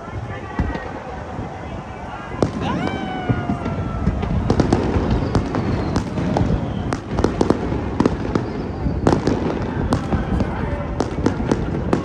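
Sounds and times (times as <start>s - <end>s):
fireworks bangs and crackles: 0.0s - 12.0s
low rumble of bursting shells: 2.4s - 12.0s.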